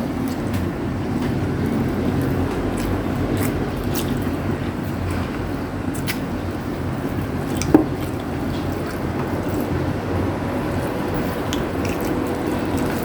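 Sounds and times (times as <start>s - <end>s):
steady low background hum: 0.0s - 13.0s
wet chewing and smacking: 0.1s - 13.0s.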